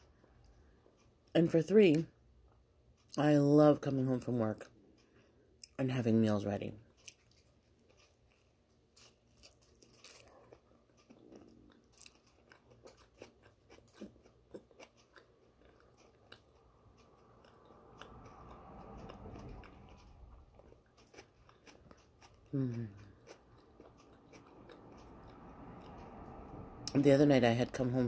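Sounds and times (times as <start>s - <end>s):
chewing with mouth clicks: 6.9s - 27.0s.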